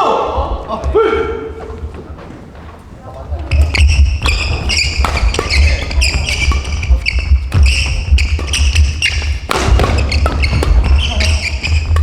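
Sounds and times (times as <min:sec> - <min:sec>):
shoes squeaking on gym floor: 0:00.6 - 0:12.0
racket striking shuttlecock: 0:03.4 - 0:12.0
dull thuds: 0:03.5 - 0:12.0.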